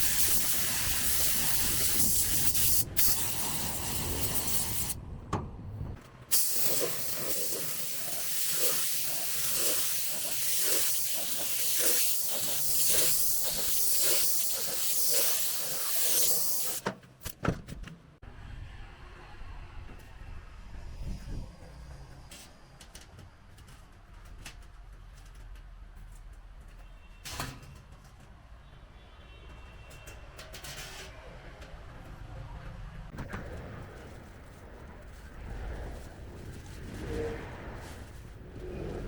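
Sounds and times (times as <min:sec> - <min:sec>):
paint spray gun hissing: 0:00.0 - 0:05.0, 0:06.3 - 0:16.8.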